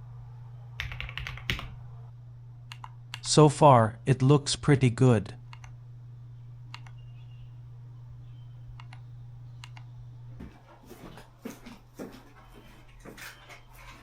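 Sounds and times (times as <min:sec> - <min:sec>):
low steady hum: 0:00.0 - 0:14.0
keyboard typing: 0:00.8 - 0:01.7, 0:02.7 - 0:03.2, 0:05.5 - 0:05.7, 0:08.8 - 0:09.0, 0:09.6 - 0:09.8.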